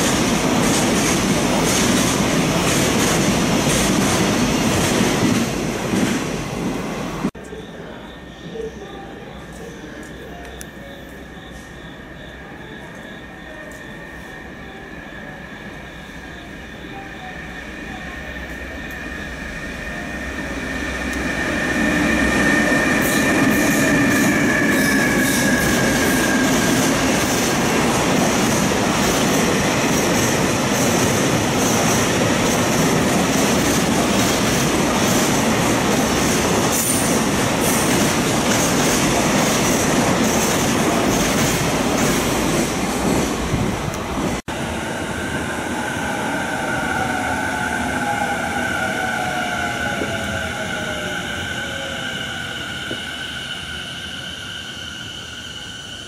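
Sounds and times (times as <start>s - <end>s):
high-pitched locomotive squeal: 7.4s - 30.2s, 45.0s - 56.0s.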